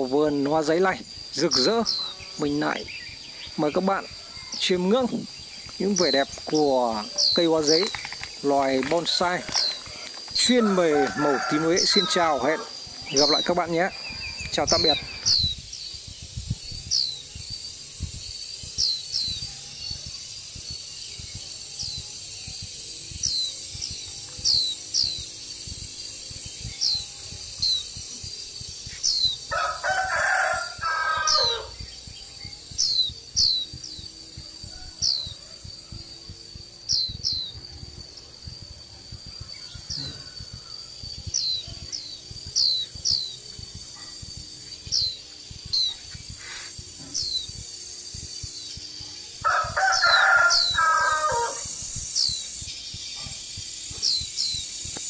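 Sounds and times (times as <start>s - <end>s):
bird chirping: 0.0s - 55.0s
rooster crowing: 4.1s - 5.0s, 8.9s - 13.4s, 29.4s - 31.8s, 34.3s - 36.3s, 49.3s - 51.7s.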